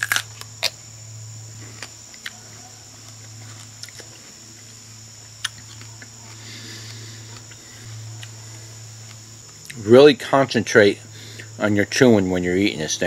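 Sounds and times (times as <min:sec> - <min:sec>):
chewing with crunches: 0:00.0 - 0:00.8, 0:01.6 - 0:09.8.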